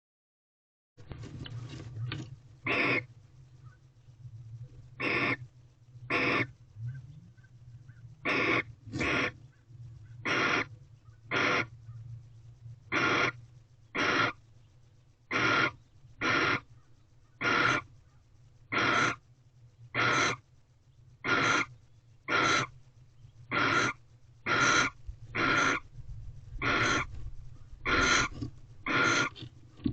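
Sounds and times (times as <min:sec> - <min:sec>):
barn owl hiss-screeches: 0:02.6 - 0:03.1, 0:05.0 - 0:05.4, 0:06.1 - 0:06.5, 0:08.2 - 0:09.4, 0:10.2 - 0:10.7, 0:11.3 - 0:11.7, 0:12.9 - 0:13.4, 0:14.0 - 0:14.4, 0:15.3 - 0:16.7, 0:17.4 - 0:17.9, 0:18.7 - 0:19.2, 0:20.0 - 0:20.4, 0:21.2 - 0:21.7, 0:22.3 - 0:22.7, 0:23.5 - 0:25.9, 0:26.6 - 0:27.1, 0:27.8 - 0:29.4.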